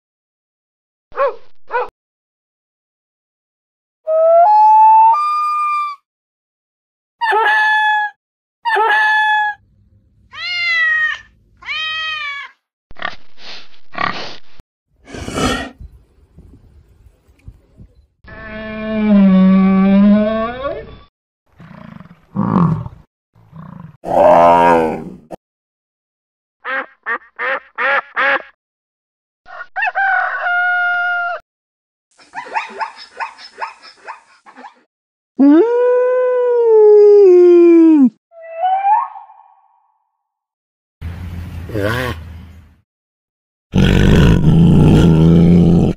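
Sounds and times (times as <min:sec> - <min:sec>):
pig grunting and squealing: 0:15.0 - 0:15.8, 0:23.5 - 0:25.4, 0:43.7 - 0:45.9
duck quacking: 0:26.6 - 0:28.5
rooster crowing: 0:29.5 - 0:31.4.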